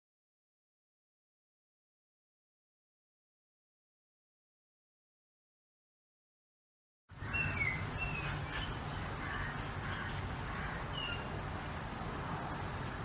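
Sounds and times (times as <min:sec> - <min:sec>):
bird chirps: 0:07.2 - 0:11.3.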